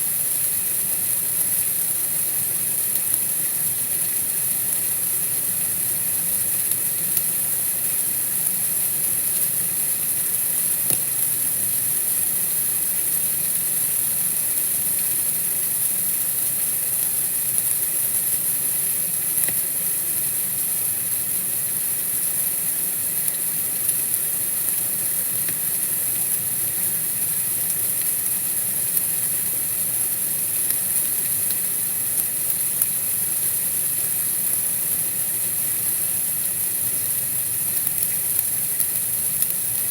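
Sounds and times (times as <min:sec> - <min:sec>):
steady night ambience hiss: 0:00.0 - 0:39.9
faint ticks: 0:10.7 - 0:11.4, 0:19.4 - 0:19.6, 0:24.7 - 0:26.0.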